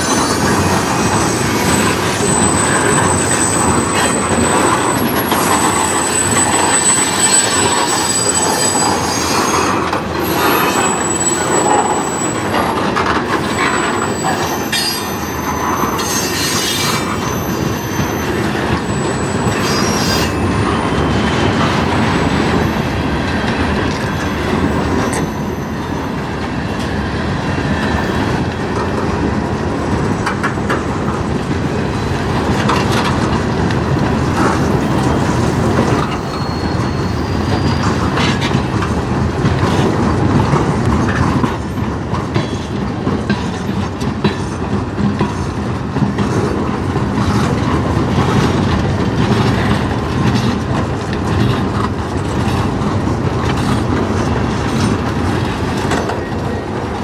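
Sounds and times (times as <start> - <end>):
wheel squeal: 0.0 - 23.2, 23.8 - 26.2, 34.3 - 38.8
freight train wheels rumbling: 0.0 - 57.0
wheels clacking over rail joints: 0.0 - 57.0.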